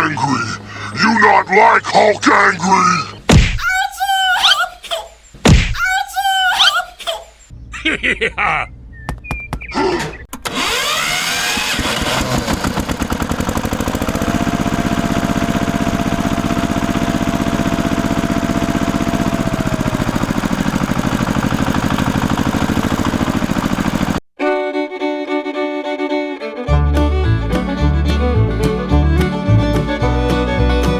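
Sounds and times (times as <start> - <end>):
small engine revving: 10.4 - 24.2
fiddle and banjo music: 24.4 - 30.9.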